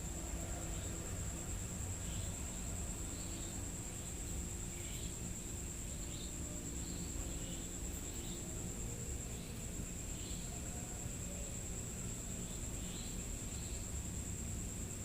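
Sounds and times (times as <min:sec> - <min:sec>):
faint insect chirps: 0:00.0 - 0:15.0
insects trilling: 0:00.0 - 0:15.0.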